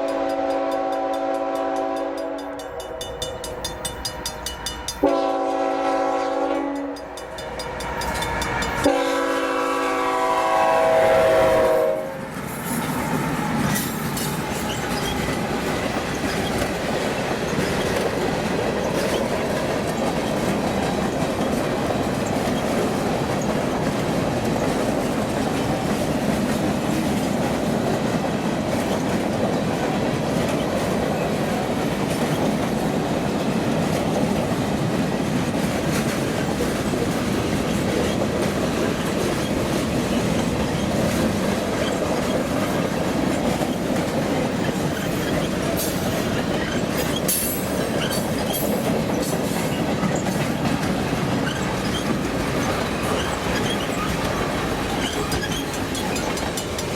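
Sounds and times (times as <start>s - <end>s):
train wheels rumbling on rails: 0.0s - 56.9s
high clicks and squeaks: 13.6s - 15.4s, 44.7s - 56.9s.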